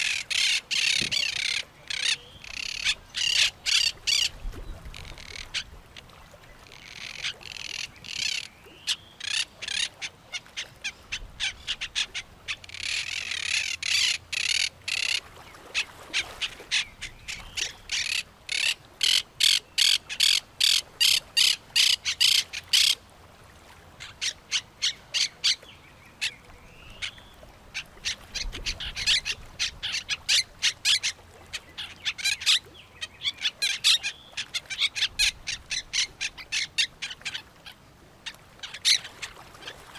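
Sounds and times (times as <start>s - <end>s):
birds calling harshly: 0.0s - 4.3s, 6.6s - 15.2s, 15.8s - 23.0s, 27.8s - 37.4s.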